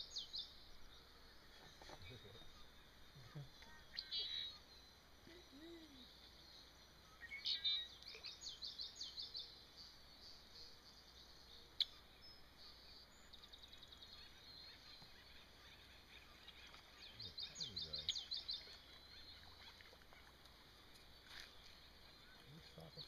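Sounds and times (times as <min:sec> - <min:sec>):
faint birdsong chirps: 0:00.0 - 0:23.0
bird trill: 0:07.0 - 0:09.5.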